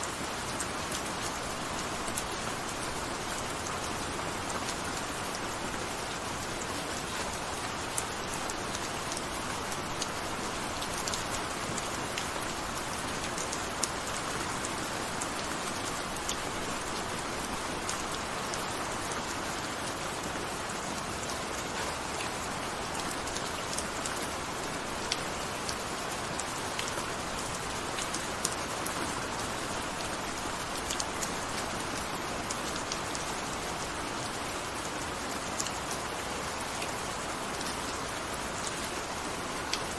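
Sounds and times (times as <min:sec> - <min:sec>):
gentle steady rain: 0:00.0 - 0:39.9
raindrops ticking: 0:21.5 - 0:39.9.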